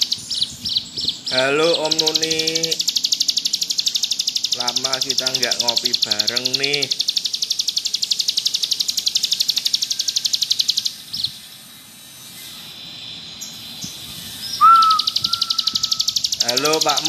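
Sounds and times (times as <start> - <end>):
bird singing buzzy trill: 0.0 - 17.0
loud steady whistle: 14.2 - 17.0.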